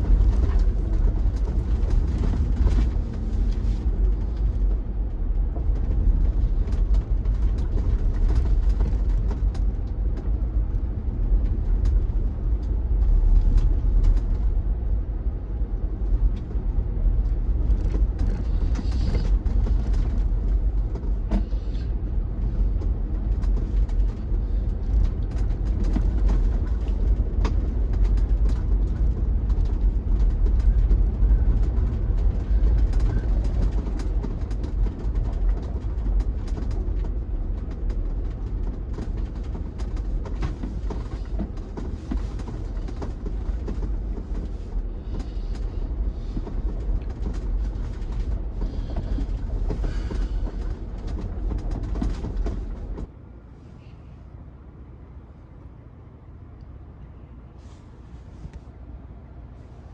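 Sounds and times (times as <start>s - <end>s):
small knocks and crackles: 0.0s - 4.8s, 17.2s - 53.1s
vehicle engine rumble: 0.0s - 59.9s.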